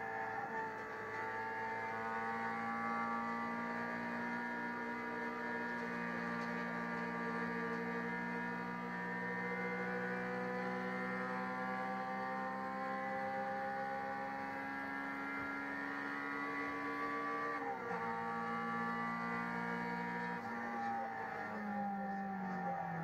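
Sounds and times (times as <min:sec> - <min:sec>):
race car engine at high revs: 0:00.0 - 0:23.0.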